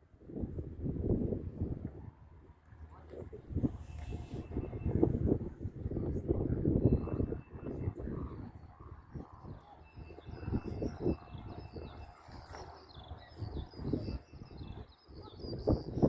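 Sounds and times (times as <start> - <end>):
wind buffeting microphone: 0.0 - 16.0
small birds chirping: 6.4 - 16.0.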